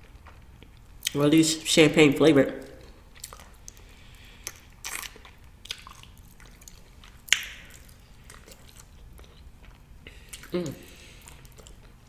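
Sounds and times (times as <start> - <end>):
person chewing and smacking food: 0.0 - 1.3, 2.6 - 12.0
wet mouth clicks: 7.3 - 8.9.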